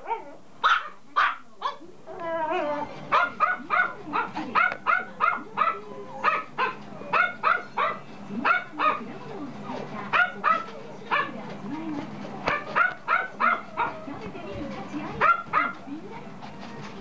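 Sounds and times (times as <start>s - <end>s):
puppy yapping: 0.1s - 9.0s, 10.1s - 11.4s, 12.5s - 14.1s, 15.2s - 15.8s
puppy whining: 2.1s - 3.3s.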